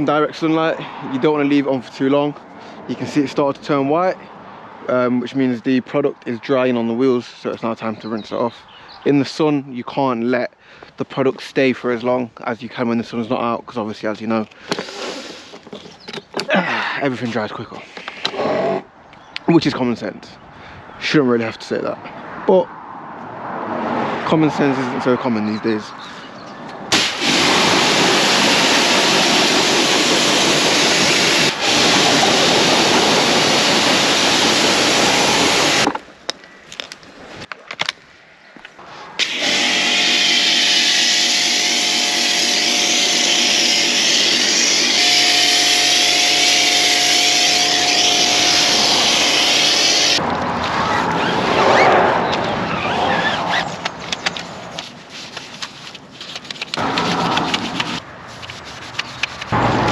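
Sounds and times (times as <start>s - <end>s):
pressure washer water jet hiss: 26.9s - 35.9s.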